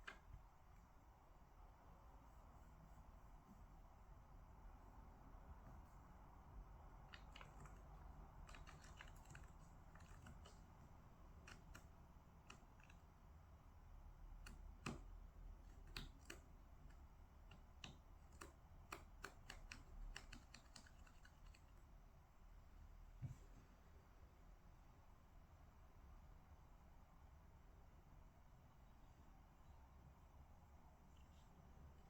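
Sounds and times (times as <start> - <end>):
low room hum: 0.0 - 32.0
typing on computer keyboard: 7.0 - 13.1, 14.4 - 21.8.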